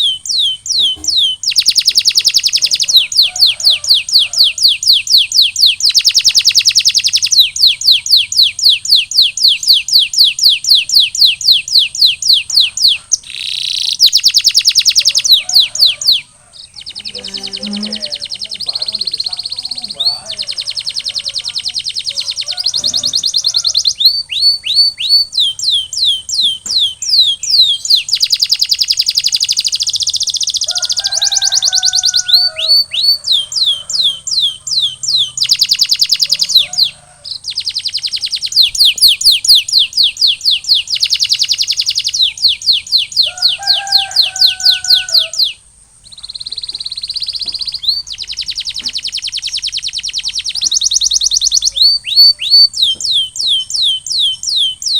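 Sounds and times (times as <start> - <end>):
canary singing: 0.0 - 54.9.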